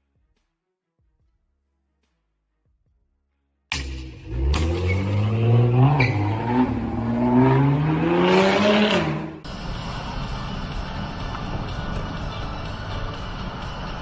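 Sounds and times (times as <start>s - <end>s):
road and traffic noise: 3.7s - 14.0s
car engine accelerating hard: 3.8s - 12.0s.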